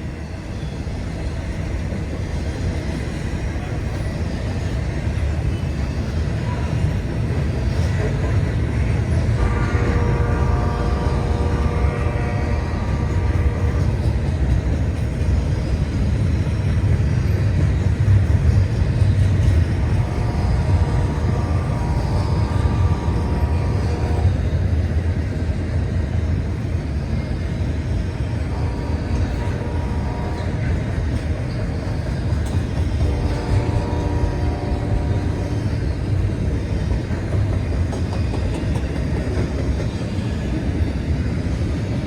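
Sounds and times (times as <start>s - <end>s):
freight train rumbling past: 0.0s - 42.0s.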